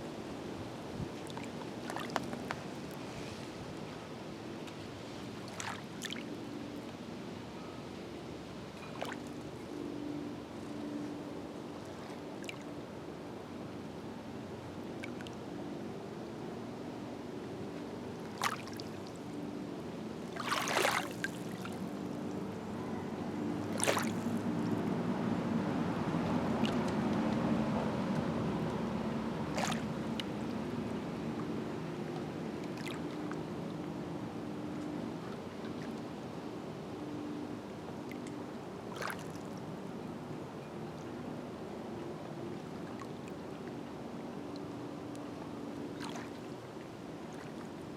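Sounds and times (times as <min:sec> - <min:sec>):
small waves lapping at shore: 0:00.0 - 0:47.9
water splashes: 0:01.0 - 0:03.3, 0:05.2 - 0:06.4, 0:08.8 - 0:09.5, 0:18.2 - 0:19.4, 0:20.2 - 0:22.4, 0:23.6 - 0:24.8, 0:26.5 - 0:27.4, 0:29.4 - 0:30.6, 0:32.6 - 0:33.4, 0:38.0 - 0:39.6, 0:45.9 - 0:47.9
water splash: 0:18.4 - 0:19.2, 0:20.3 - 0:21.8, 0:23.7 - 0:24.4, 0:26.6 - 0:27.0, 0:29.5 - 0:30.2
low motor drone: 0:21.4 - 0:38.6.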